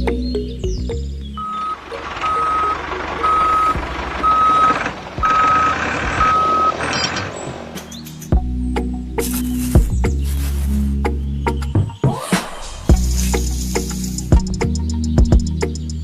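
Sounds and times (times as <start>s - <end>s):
engine rumble: 0.0s - 11.6s, 12.9s - 16.0s
reversing alarm beeping: 1.4s - 7.3s.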